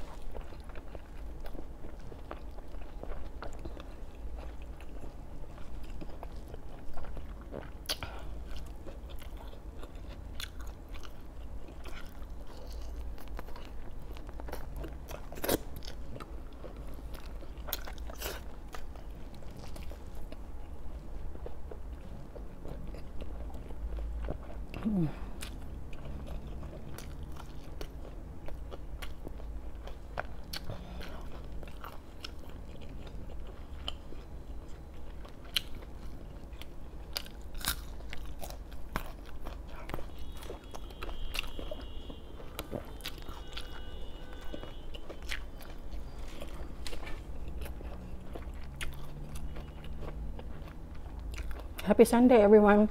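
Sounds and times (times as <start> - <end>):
chewing and biting food: 0.0 - 52.0
sharp crunchy bites: 37.1 - 39.6.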